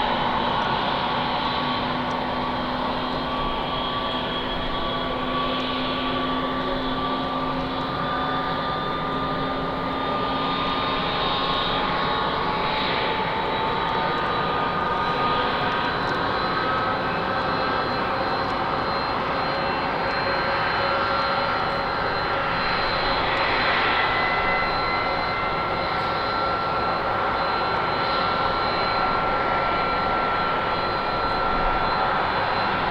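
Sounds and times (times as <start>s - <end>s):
jet engines spooling up: 17.4s - 32.9s.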